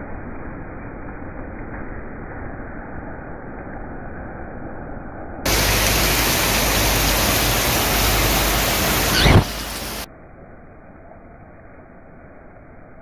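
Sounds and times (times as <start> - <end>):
heavy rain hissing: 5.5 - 10.1.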